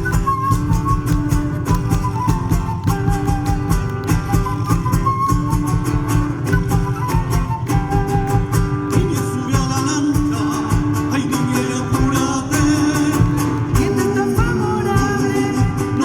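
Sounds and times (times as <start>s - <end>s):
held folk melody: 0.0s - 16.0s
strummed guitar: 0.0s - 16.0s.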